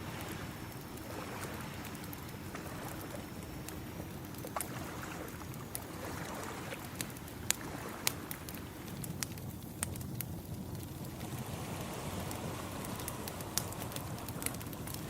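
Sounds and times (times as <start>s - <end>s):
wood fire crackling and popping: 0.0s - 15.0s
ocean waves washing: 10.7s - 15.0s.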